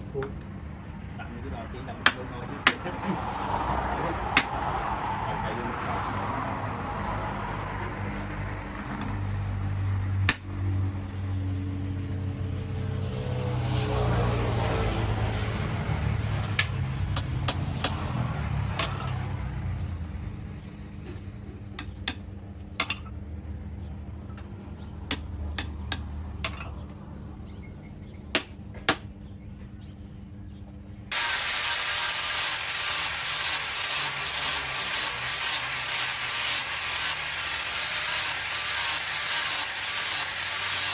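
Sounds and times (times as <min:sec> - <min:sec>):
power tool hissing: 0:31.1 - 0:40.9.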